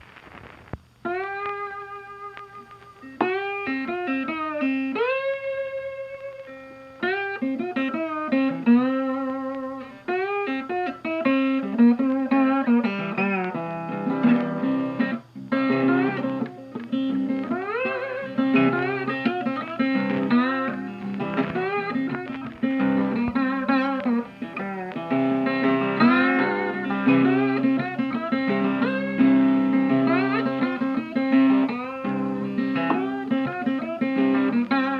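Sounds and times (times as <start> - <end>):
blues guitar: 0.0 - 34.9.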